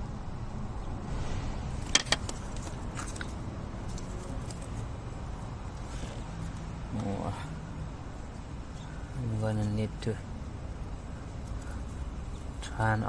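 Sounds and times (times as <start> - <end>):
steady low hum: 0.0 - 13.0
sharp clicks of parts handled: 1.8 - 4.9.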